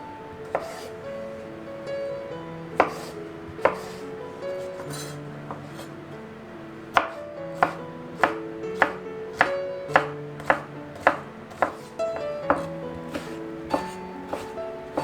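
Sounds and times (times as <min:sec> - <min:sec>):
soft background music: 0:00.0 - 0:15.0
knife chopping on cutting board: 0:00.5 - 0:00.9, 0:02.8 - 0:04.0, 0:04.6 - 0:05.9, 0:06.9 - 0:15.0.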